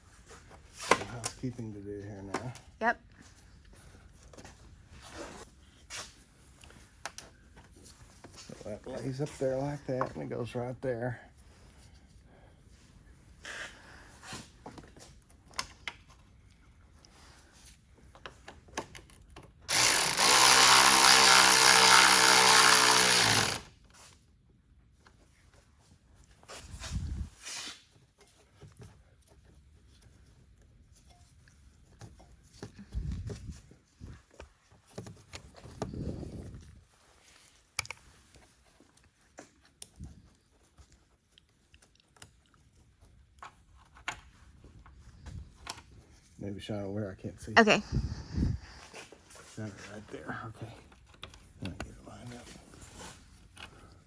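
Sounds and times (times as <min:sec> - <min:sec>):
clicks and knocks of handled parts: 0:17.7 - 0:19.7
power tool running: 0:19.7 - 0:23.7.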